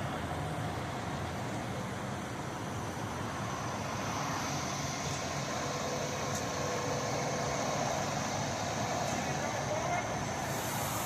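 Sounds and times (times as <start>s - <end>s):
truck engine running: 0.0s - 11.0s
faint high whine: 2.3s - 11.0s.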